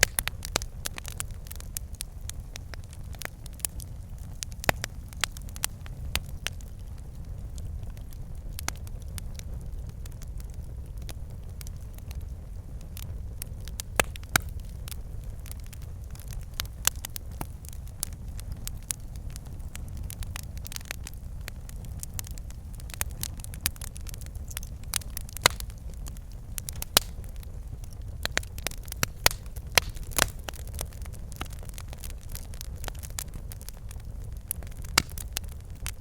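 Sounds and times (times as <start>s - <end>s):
logs crackling and popping: 0.0s - 36.0s
low rumble of flames: 0.0s - 36.0s.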